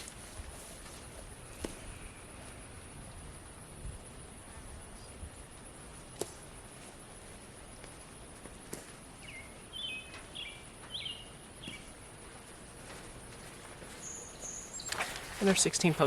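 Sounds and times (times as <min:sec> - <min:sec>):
insect buzz: 0:00.0 - 0:16.0
bird chirping: 0:09.2 - 0:12.0, 0:13.7 - 0:16.0.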